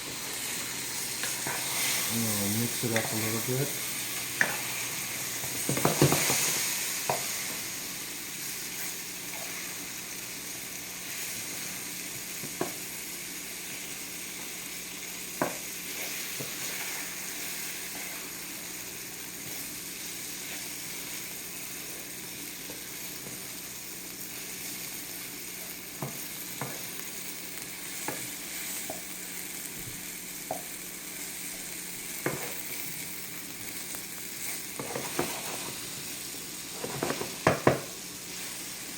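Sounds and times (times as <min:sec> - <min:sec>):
chicken sizzling in a pan: 0:00.0 - 0:38.9.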